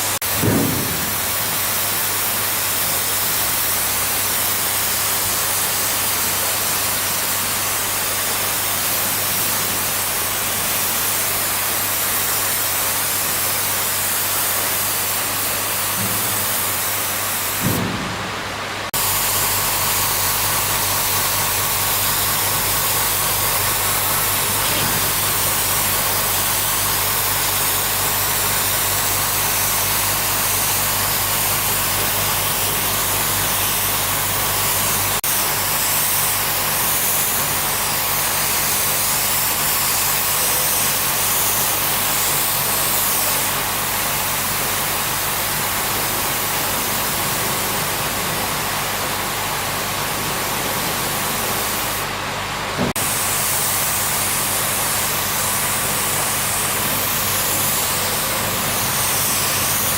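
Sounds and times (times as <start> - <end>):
loud even hiss: 0.0 - 59.9.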